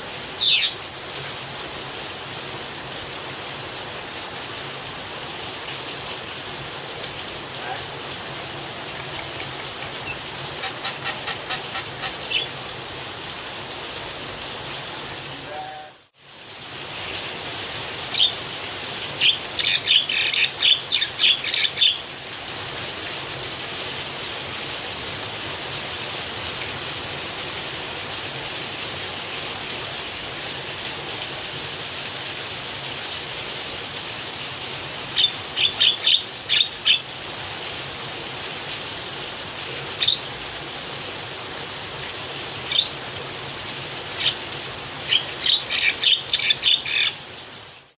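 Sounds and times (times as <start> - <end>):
rain falling: 0.0 - 47.9
bird calling harsh notes: 0.3 - 0.8, 9.6 - 12.7, 40.0 - 40.3, 42.6 - 43.0, 44.2 - 47.2.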